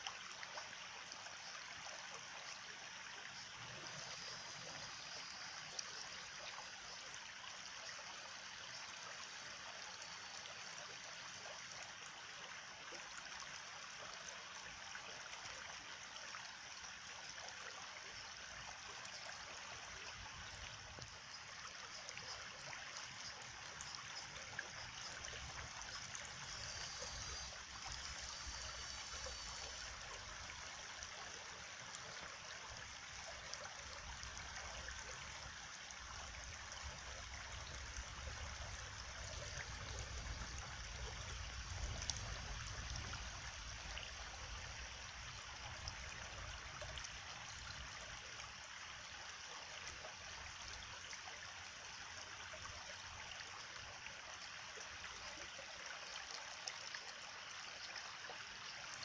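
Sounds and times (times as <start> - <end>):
stream trickling: 0.0 - 59.0.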